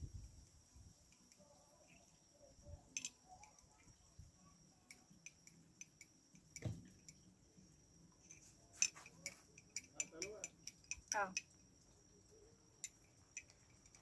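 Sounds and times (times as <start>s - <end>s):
crickets chirring: 0.0s - 14.0s
soft thump: 6.6s - 6.9s.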